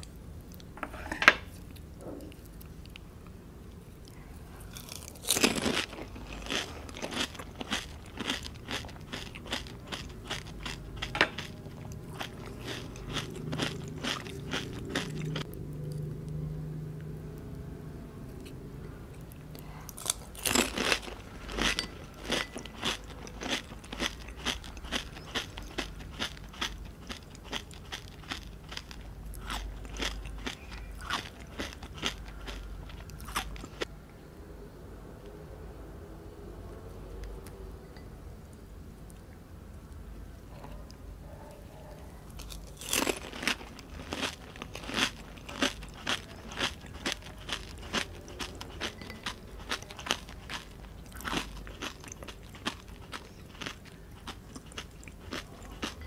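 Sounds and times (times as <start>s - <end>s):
crisp snack crunching: 4.7s - 15.5s, 19.9s - 33.9s, 42.4s - 56.0s.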